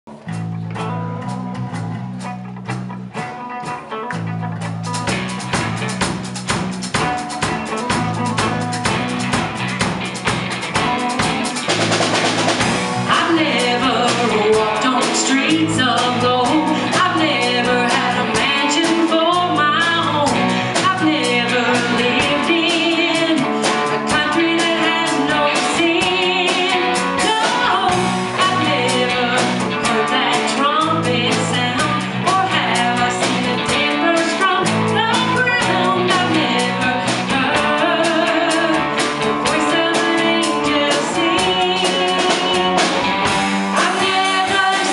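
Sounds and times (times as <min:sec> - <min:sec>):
live rock band playing: 0:00.1 - 0:44.9
voices singing: 0:10.9 - 0:44.9.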